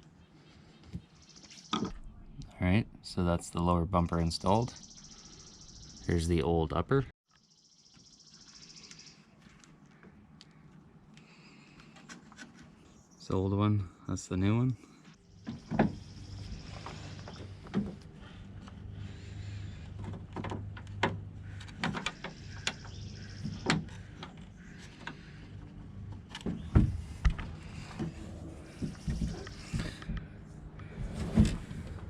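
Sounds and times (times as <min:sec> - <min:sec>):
steady low hum: 0:13.2 - 0:32.0
clicks and knocks of tailgate parts: 0:19.9 - 0:25.3.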